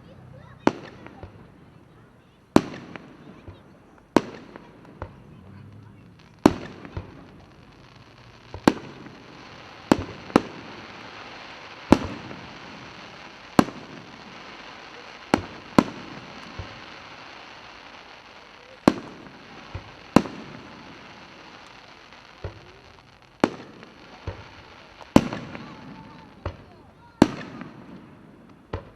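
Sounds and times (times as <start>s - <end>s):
fireworks bursting with sharp bangs: 0.0s - 28.9s
steady hiss: 4.4s - 27.0s.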